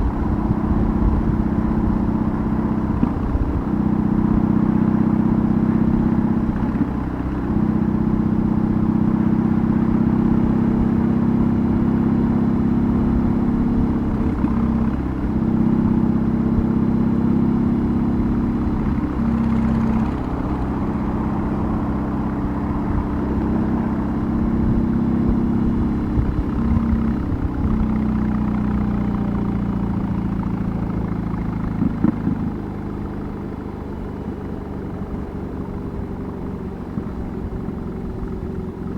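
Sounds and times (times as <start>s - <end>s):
motorcycle engine droning: 0.0s - 38.9s
exhaust crackles: 17.8s - 28.9s.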